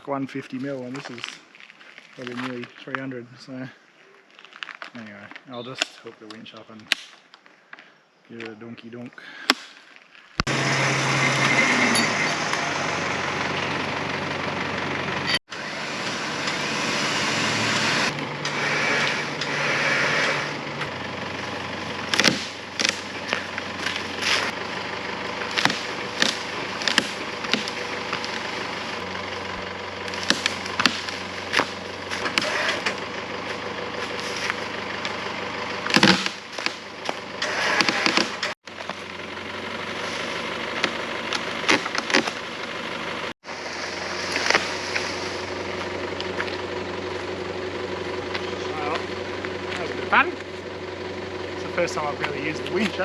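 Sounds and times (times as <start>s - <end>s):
vehicle engine idling: 10.4s - 53.0s
winch motor whining: 10.4s - 53.0s
log cracking and knocking: 22.1s - 24.2s, 25.4s - 28.5s, 30.1s - 32.5s, 35.9s - 37.2s.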